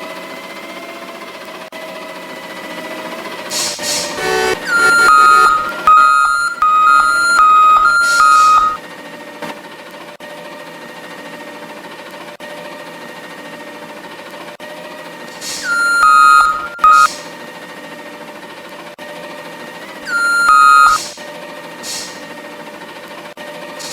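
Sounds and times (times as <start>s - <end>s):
steady hum: 4.2s - 5.9s
truck warning beeper: 4.2s - 8.8s, 15.5s - 17.2s, 20.1s - 21.2s
hiss: 15.3s - 15.7s, 21.8s - 22.3s.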